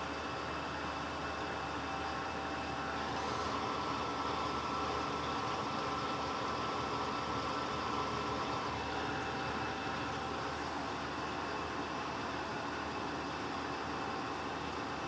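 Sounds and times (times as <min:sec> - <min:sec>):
washing machine humming: 0:00.0 - 0:15.0.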